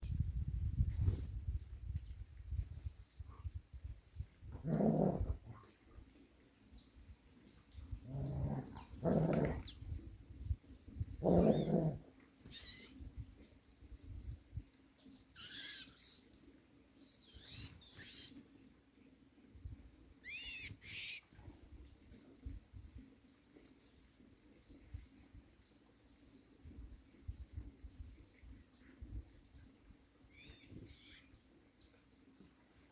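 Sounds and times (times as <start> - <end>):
dog growling: 4.6 - 5.6, 8.0 - 9.6, 11.2 - 12.1
thin high bird calls: 11.1 - 13.1, 15.3 - 18.5, 20.2 - 21.4, 30.3 - 31.4, 32.7 - 32.9.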